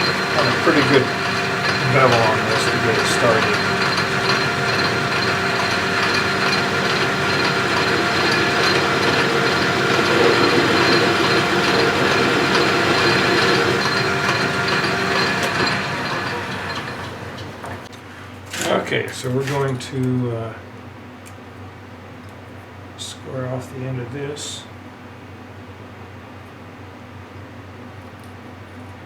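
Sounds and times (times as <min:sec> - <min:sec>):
metal lathe whine: 0:00.0 - 0:17.9
tool cutting metal: 0:00.0 - 0:17.9.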